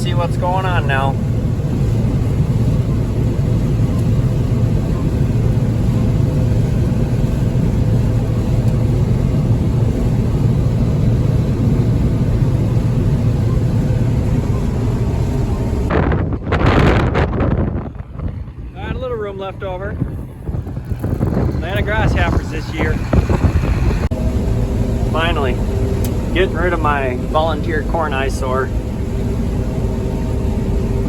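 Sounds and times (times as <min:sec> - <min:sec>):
combine harvester drone: 0:00.0 - 0:31.0
loud rushing noise: 0:15.7 - 0:28.8.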